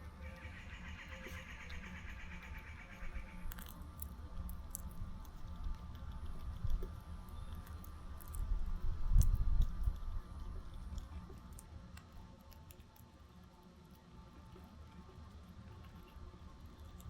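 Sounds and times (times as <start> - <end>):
wind rumble on microphone: 4.2 - 11.7.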